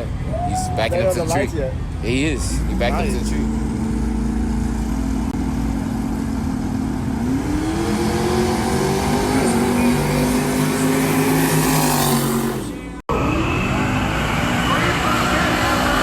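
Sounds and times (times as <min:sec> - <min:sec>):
car engine accelerating: 0:02.4 - 0:16.0.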